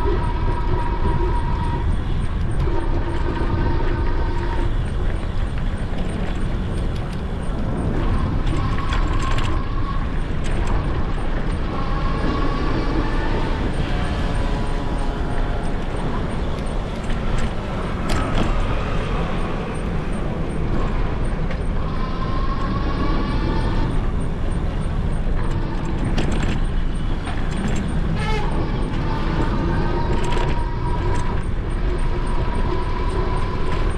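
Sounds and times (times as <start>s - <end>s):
wind rumbling on microphone: 0.0s - 33.9s
road traffic passing: 11.2s - 22.2s.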